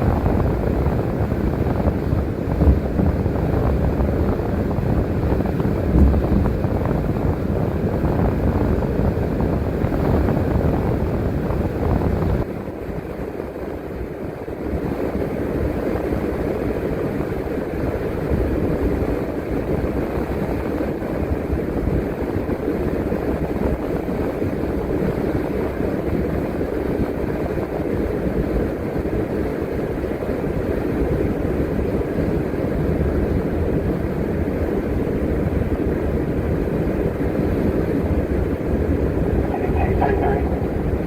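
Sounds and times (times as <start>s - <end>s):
bus engine: 38.6s - 41.0s
road noise: 38.6s - 41.0s.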